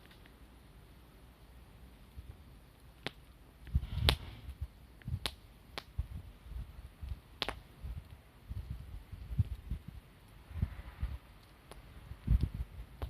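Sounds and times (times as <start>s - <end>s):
burning wood popping: 0.0s - 13.0s
wood fire burning: 0.0s - 13.0s.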